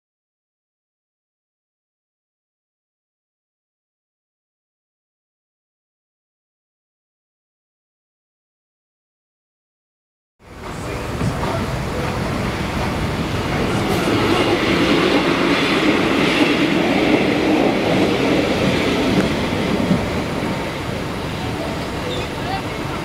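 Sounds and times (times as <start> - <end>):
passenger train passing: 10.4 - 23.0
wheels clacking over rail joints: 10.5 - 23.0.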